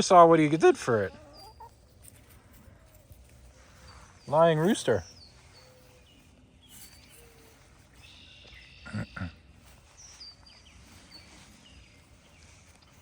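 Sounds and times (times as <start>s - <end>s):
small birds chirping: 0.0s - 13.0s
chicken clucking: 0.9s - 2.1s.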